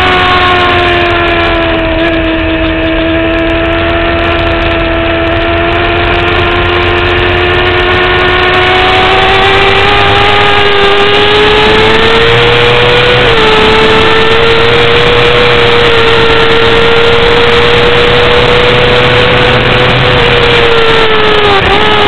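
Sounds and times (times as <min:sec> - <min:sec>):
motorcycle engine at high revs: 0:00.0 - 0:22.0.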